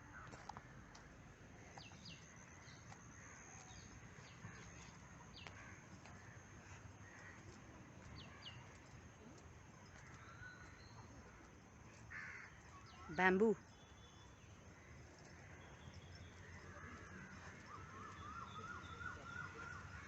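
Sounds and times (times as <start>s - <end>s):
faint outdoor hush: 0.0s - 20.0s
bird chirps: 12.4s - 20.0s.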